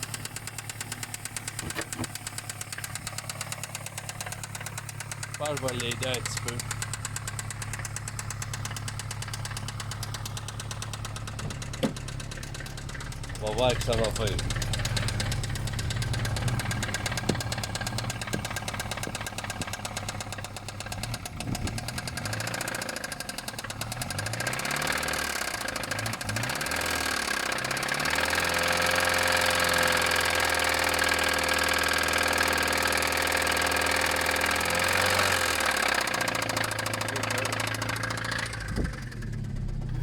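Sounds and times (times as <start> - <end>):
car engine revving with a knock: 0.3 - 4.5, 8.5 - 13.0, 14.5 - 20.3, 37.8 - 40.0.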